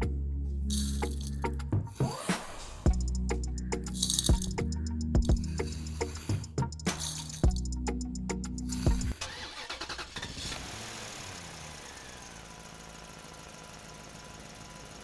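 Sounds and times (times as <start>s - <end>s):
tractor engine running: 0.0s - 15.0s
music with steady beat: 0.9s - 9.2s.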